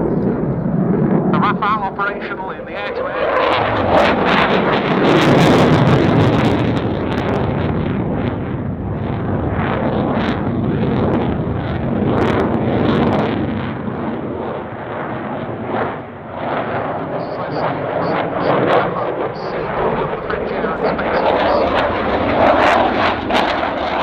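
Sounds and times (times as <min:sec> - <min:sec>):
fighter jet flying: 0:00.0 - 0:24.0.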